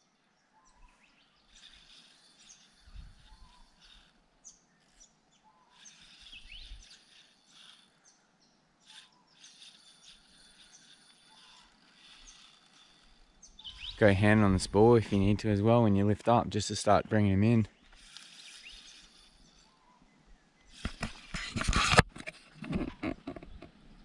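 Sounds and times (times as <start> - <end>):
faint bird chirps: 0.0 - 15.2, 17.7 - 20.8.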